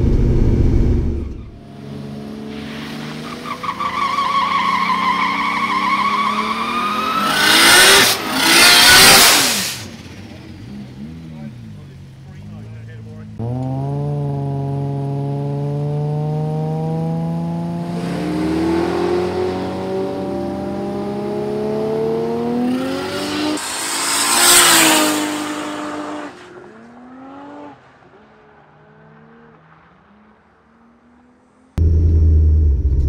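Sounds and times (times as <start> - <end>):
car launching: 0.0 - 1.6
drag car engine revving: 0.0 - 1.6.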